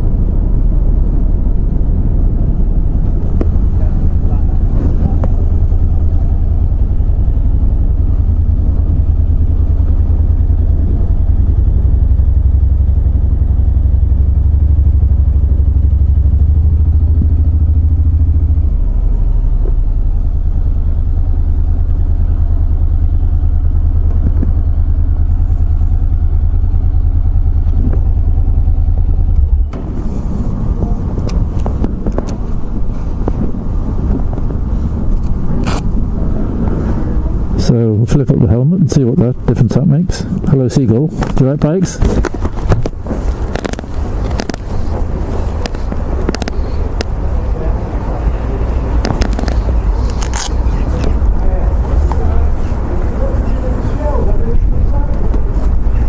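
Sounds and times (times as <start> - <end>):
motorcycle engine and wind rumble: 0.0 - 56.0
clicks: 45.5 - 47.1.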